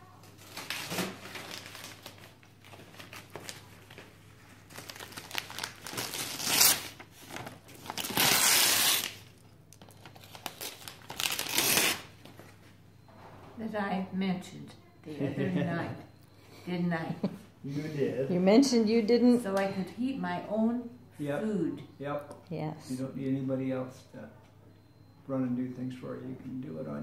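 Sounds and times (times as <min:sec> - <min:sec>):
packaging tearing and crumpling: 0:00.3 - 0:04.0, 0:04.7 - 0:12.1.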